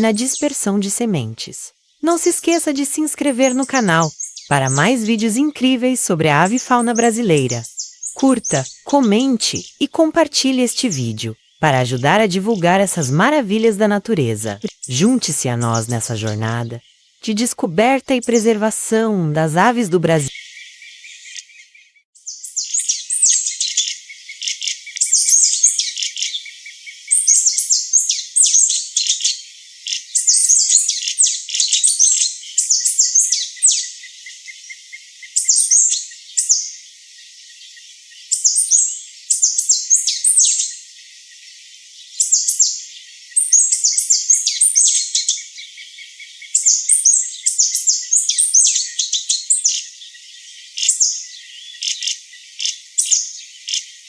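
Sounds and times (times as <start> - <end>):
bird chirping high thin phrases: 0.0 - 20.4
faint insect hum: 0.0 - 21.6, 22.2 - 54.0.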